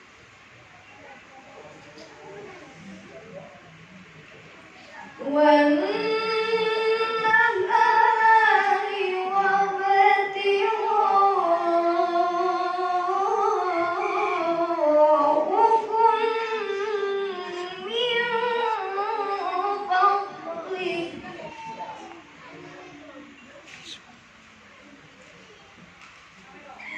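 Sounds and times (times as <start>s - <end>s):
woman chanting melodiously: 5.2s - 21.4s.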